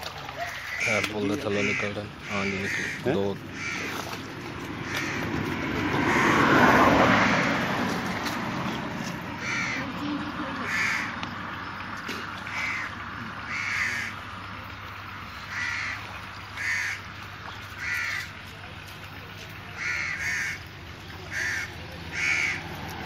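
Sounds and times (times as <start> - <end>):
water rushing: 0.0 - 23.0
bird calling: 0.1 - 7.6, 9.3 - 14.3, 15.1 - 18.4, 19.7 - 22.7.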